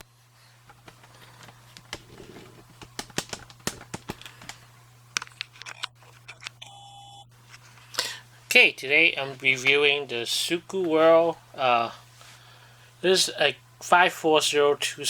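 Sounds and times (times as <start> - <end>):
low electrical hum: 0.0 - 15.0
objects clicking and tapping: 0.7 - 4.6.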